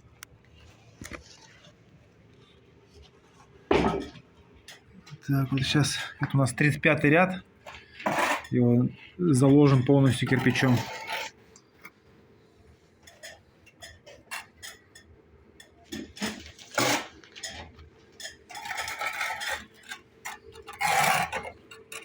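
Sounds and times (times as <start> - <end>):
trowel scraping mortar: 7.9 - 8.6, 9.4 - 11.4, 18.5 - 22.0.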